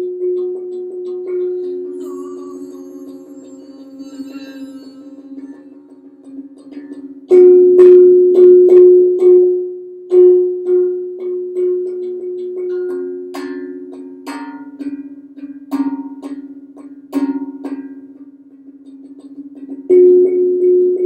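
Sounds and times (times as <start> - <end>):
bell-like tuned percussion: 0.0 - 8.5
sustained low tone: 0.0 - 9.2.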